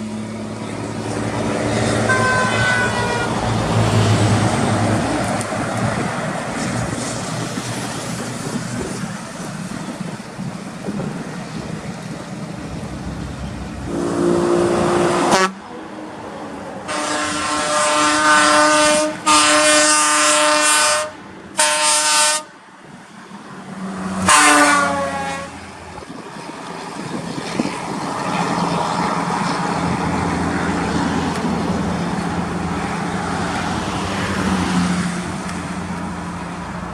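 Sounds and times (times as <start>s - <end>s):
heavy truck engines running: 0.0s - 14.8s, 26.1s - 36.9s
truck air horn blasts: 1.9s - 3.8s, 13.0s - 15.6s, 16.9s - 22.6s, 24.2s - 25.7s.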